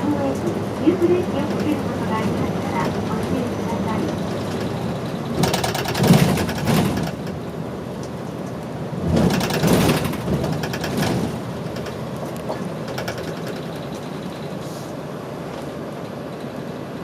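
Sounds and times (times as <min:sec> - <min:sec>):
bus engine and road noise: 0:00.0 - 0:17.0
rapid rattling clatter: 0:01.1 - 0:07.5, 0:09.0 - 0:14.6.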